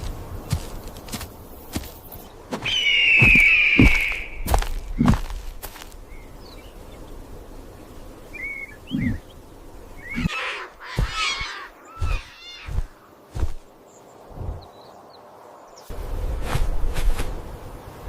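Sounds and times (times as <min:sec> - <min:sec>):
bird-like chirps: 0:01.6 - 0:05.3, 0:08.2 - 0:15.9.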